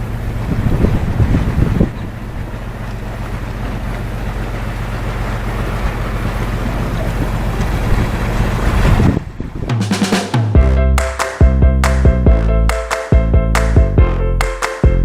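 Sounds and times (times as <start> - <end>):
wind: 0.0 - 11.1
boat engine running: 0.0 - 15.0
water noise: 0.0 - 15.0.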